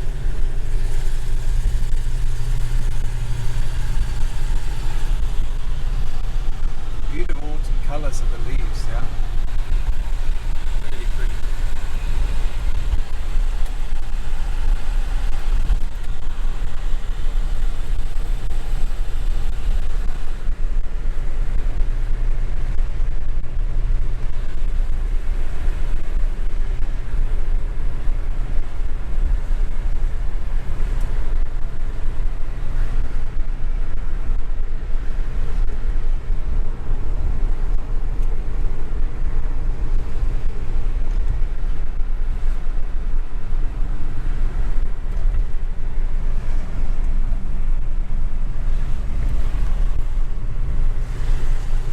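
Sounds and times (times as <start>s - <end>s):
car engine rumble: 0.0s - 51.9s.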